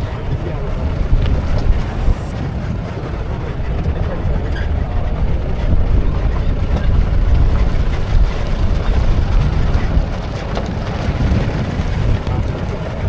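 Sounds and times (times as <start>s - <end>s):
vehicle rumbling: 0.0s - 13.0s
wind buffeting microphone: 0.0s - 13.0s.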